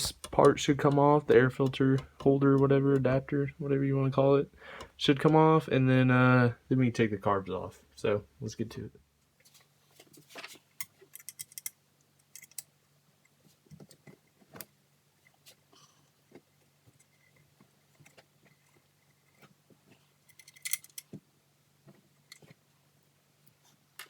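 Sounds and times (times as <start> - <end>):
hand tools clinking on metal: 20.3 - 21.1.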